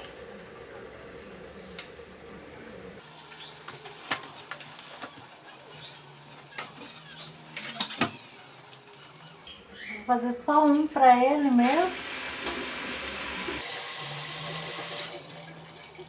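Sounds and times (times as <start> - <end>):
steady low hum: 0.0 - 3.3.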